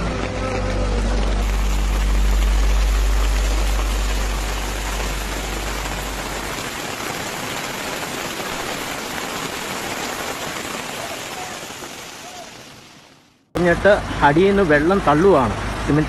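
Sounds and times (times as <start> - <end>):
heavy rain and rushing water: 0.0 - 16.0
low steady hum: 0.6 - 7.2.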